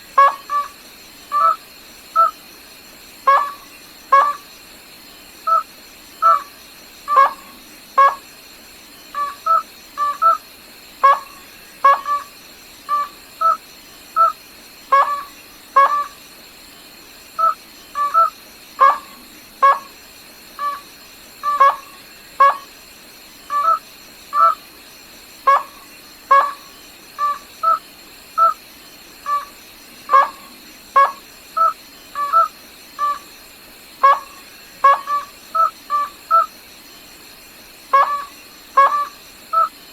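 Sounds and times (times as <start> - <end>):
faint high hiss: 0.0 - 39.9
rail bird calling: 0.1 - 2.4, 3.3 - 4.5, 5.4 - 8.2, 9.1 - 16.2, 17.4 - 20.0, 20.6 - 22.7, 23.4 - 24.6, 25.4 - 28.6, 29.2 - 33.3, 34.0 - 36.6, 37.9 - 39.8.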